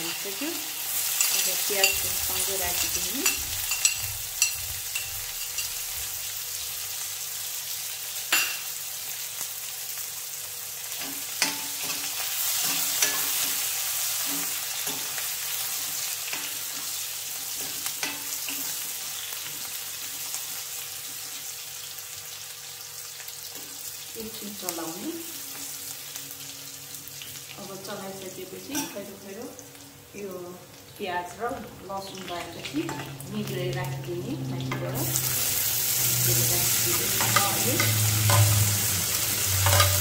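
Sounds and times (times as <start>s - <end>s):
onion sizzling in hot oil: 0.0s - 40.0s
metal spoon scraping a pan: 1.0s - 6.2s, 11.0s - 15.2s, 34.7s - 40.0s.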